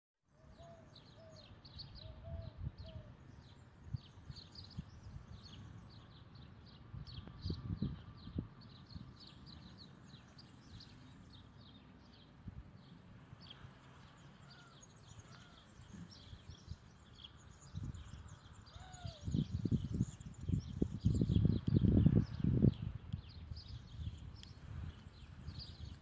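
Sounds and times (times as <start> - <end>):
lower slurred bird calls: 0.3 - 6.2, 13.4 - 20.8
birds chirping: 0.5 - 26.0.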